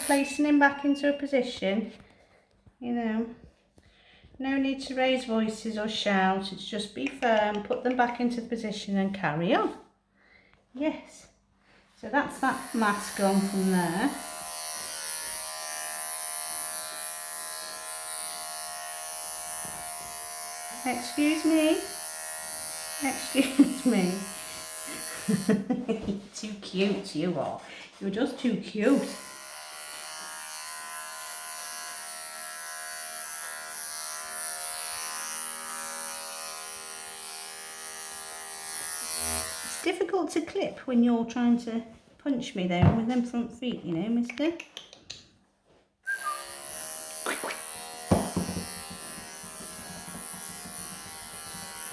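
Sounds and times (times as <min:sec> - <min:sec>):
electric clippers buzzing: 0:00.0 - 0:00.3, 0:12.3 - 0:25.7, 0:28.8 - 0:39.9, 0:46.1 - 0:51.9.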